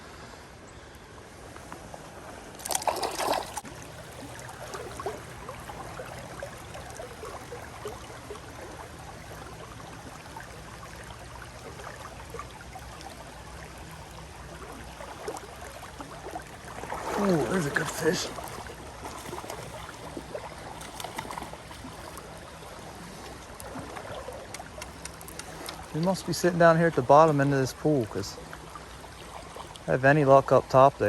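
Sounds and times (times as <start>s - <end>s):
creek water running: 0.0s - 31.0s
water splash: 2.4s - 13.8s, 14.6s - 29.9s
small ticks: 24.4s - 26.0s.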